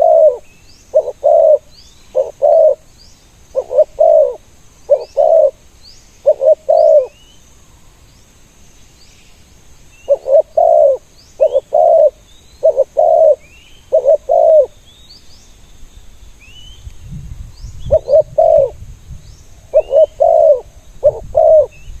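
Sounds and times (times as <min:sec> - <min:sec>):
doves cooing: 0:00.0 - 0:02.8, 0:03.5 - 0:05.6, 0:06.2 - 0:07.2, 0:10.1 - 0:14.8, 0:17.9 - 0:18.8, 0:19.7 - 0:21.8
small birds chirping: 0:00.0 - 0:22.0.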